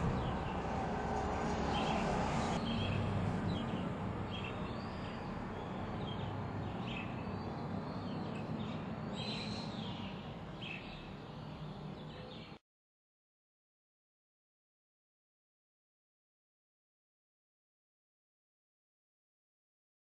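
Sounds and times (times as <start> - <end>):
low outdoor rumble: 0.0 - 6.8
small birds chirping: 1.6 - 12.6.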